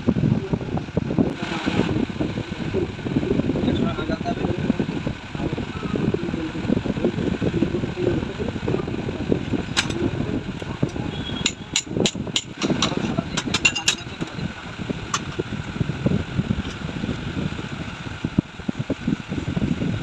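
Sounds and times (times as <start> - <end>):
low background rumble: 0.0 - 20.0
metal tools clinking: 12.9 - 14.1.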